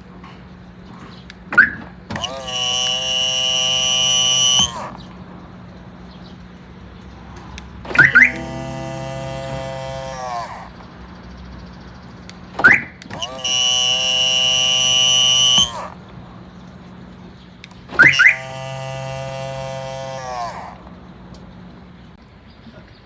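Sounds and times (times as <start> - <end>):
mirror motor click: 1.2 - 5.1, 7.6 - 10.8, 12.6 - 16.0, 17.6 - 21.4
mirror motor whining: 1.6 - 5.7, 7.7 - 11.1, 13.1 - 16.2, 17.7 - 22.2.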